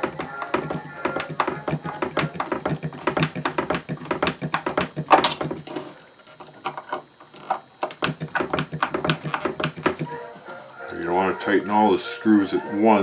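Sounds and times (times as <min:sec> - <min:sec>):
clicks and knocks of grinder parts: 0:00.0 - 0:10.0.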